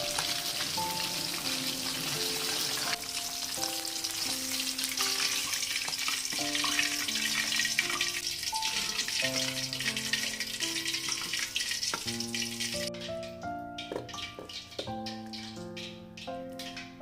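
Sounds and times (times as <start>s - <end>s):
food sizzling in oil: 0.0s - 17.0s
melodic background music: 0.0s - 17.0s.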